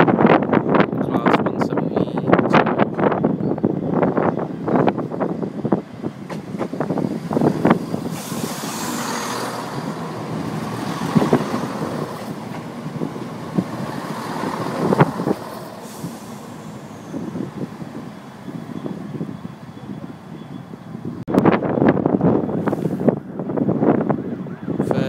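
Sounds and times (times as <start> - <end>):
train wheels clicking on rails: 6.2 - 17.9
short hisses: 8.1 - 9.6, 15.7 - 17.0.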